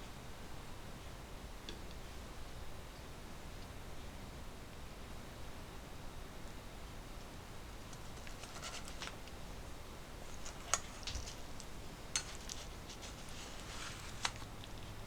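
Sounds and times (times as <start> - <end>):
scraping and rustling: 7.8 - 15.0.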